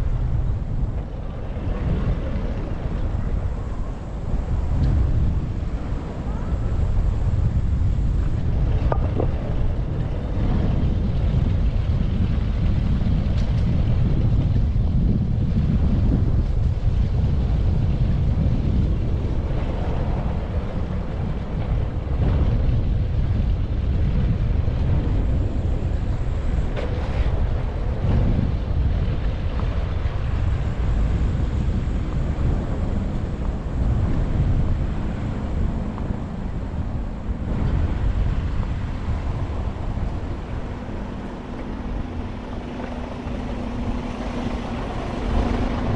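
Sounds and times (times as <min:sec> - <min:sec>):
wind buffeting microphone: 0:00.0 - 0:45.9
faint clicks from bicycle: 0:11.4 - 0:14.6.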